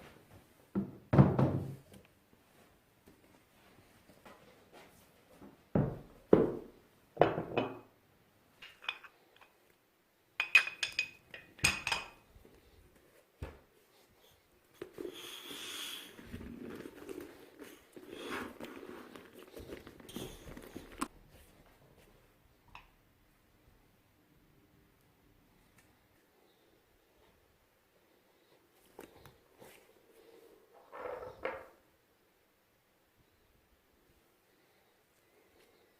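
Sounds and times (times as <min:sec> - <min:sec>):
rubbing or scraping: 0:14.9 - 0:21.1.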